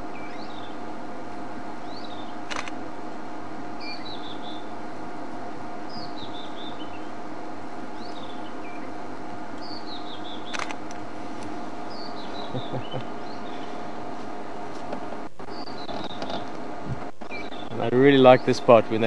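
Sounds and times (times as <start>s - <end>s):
songbird singing: 0.0s - 2.7s, 3.6s - 14.7s, 15.4s - 19.0s
steady hum: 0.0s - 19.0s
sharp click: 2.5s - 2.8s, 10.5s - 11.0s.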